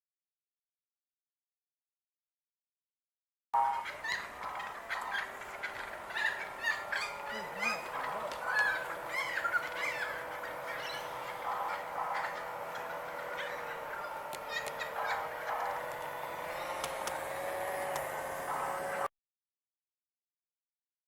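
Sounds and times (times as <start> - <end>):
birds calling: 3.6 - 19.1.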